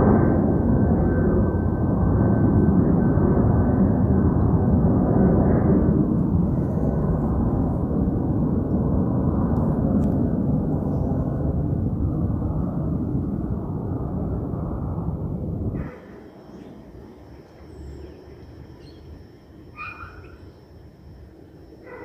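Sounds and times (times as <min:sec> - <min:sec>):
jet airliner engine rumble: 0:00.0 - 0:22.0
faint high whine: 0:02.2 - 0:22.0.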